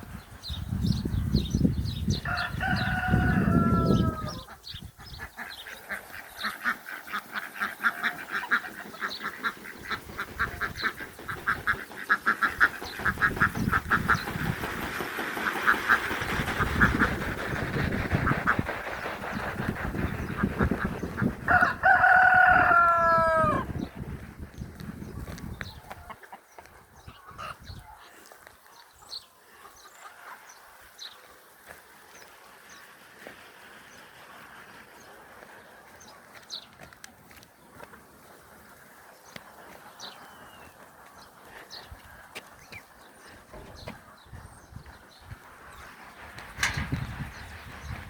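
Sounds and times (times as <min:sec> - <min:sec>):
birds rapid repeated calls: 0:00.0 - 0:37.0, 0:37.6 - 0:48.0
rooster crowing: 0:02.2 - 0:04.5, 0:21.5 - 0:23.7.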